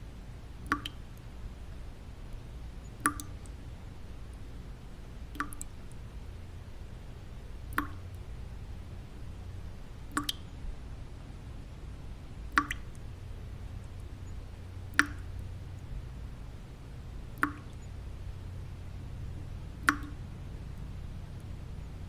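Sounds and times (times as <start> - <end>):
low white noise: 0.0 - 22.0
water drops falling: 0.6 - 1.2, 3.0 - 3.6, 5.3 - 6.0, 7.7 - 8.2, 10.1 - 10.6, 12.5 - 13.1, 13.8 - 15.9, 17.4 - 21.6.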